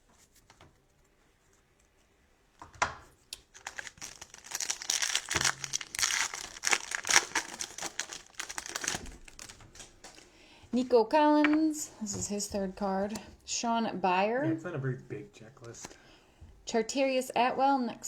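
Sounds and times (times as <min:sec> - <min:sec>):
plastic wrapper crinkling: 0:03.3 - 0:10.4.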